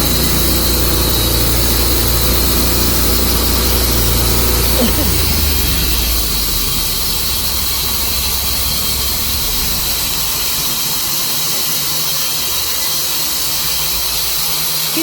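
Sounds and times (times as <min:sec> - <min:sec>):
low motor hum: 0:00.0 - 0:14.2
bandsaw blade hissing and squealing: 0:00.1 - 0:08.1, 0:09.4 - 0:15.0.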